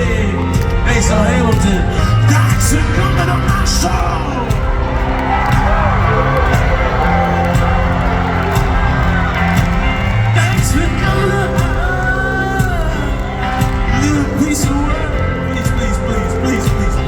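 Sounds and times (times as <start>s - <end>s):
crowd singing along: 0.0s - 17.0s
live rock band playing: 0.0s - 17.0s.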